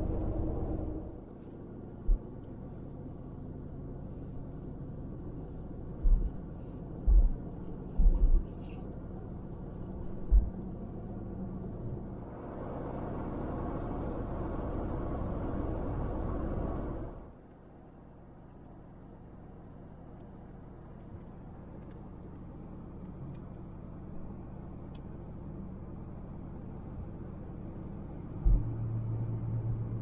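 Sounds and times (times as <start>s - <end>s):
vehicle road rumble: 0.0s - 30.0s
deep thumps of road bumps: 6.0s - 6.4s, 7.0s - 8.6s, 10.2s - 10.7s, 28.4s - 28.8s.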